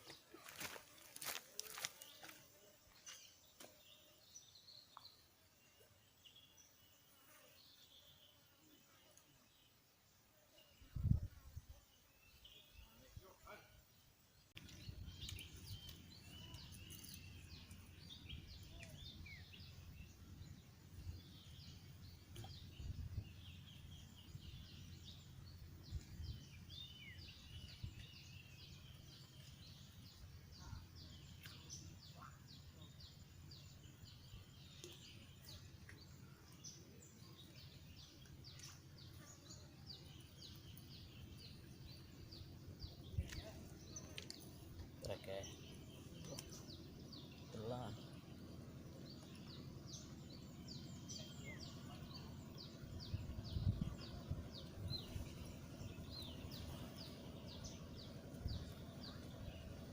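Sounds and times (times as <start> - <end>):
faint birdsong: 0.0 - 59.9
low wind rumble: 17.5 - 28.8, 45.7 - 59.9.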